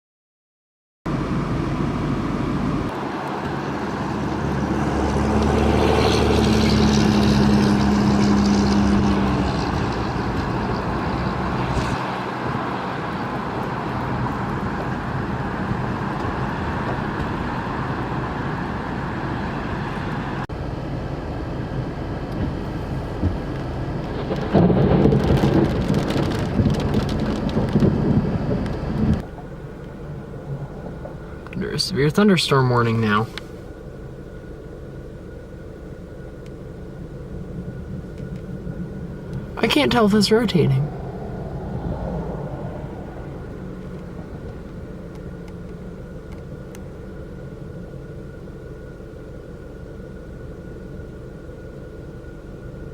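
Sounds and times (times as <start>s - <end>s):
strong wind gusts: 1.2s - 31.5s, 36.9s - 46.1s
heavy rain: 22.7s - 31.4s.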